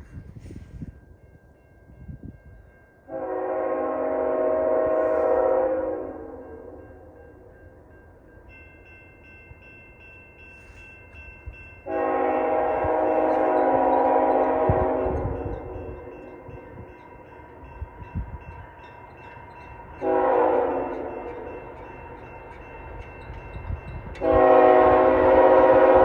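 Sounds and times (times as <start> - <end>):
locomotive air horn blast: 3.1 - 6.6, 11.8 - 16.1, 20.0 - 21.3, 24.2 - 26.0
pulsing ringing bell: 6.5 - 24.2.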